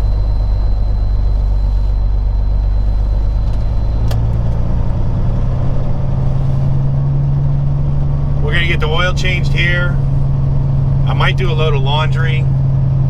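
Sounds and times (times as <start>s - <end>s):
truck diesel engine running: 0.0s - 13.0s
click: 3.5s - 4.6s.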